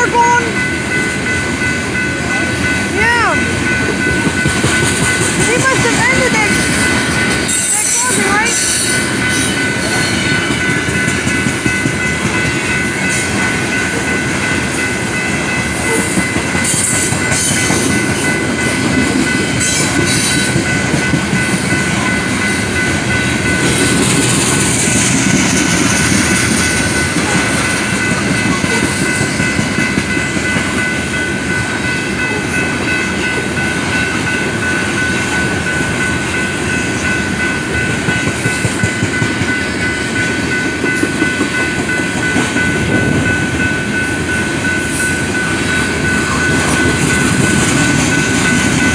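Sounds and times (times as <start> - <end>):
high ringing tones: 0.0 - 48.9
train rumbling and clacking: 0.0 - 48.9.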